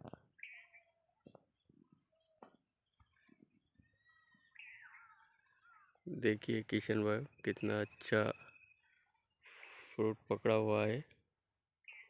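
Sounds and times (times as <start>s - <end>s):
faint birdsong: 0.0s - 12.0s
faint high chirping: 0.0s - 12.0s.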